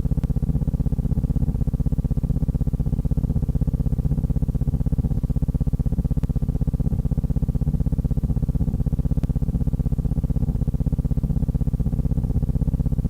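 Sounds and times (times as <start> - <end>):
pulsing low hum: 0.0 - 13.0
faint ticks: 9.2 - 9.4.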